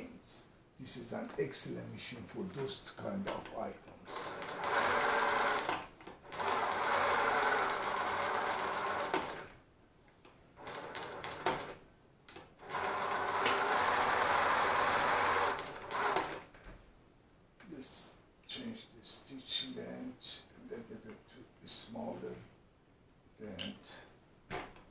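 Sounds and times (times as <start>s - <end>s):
industrial sewing machine stitching: 4.1s - 9.5s, 10.6s - 11.8s, 12.6s - 16.5s.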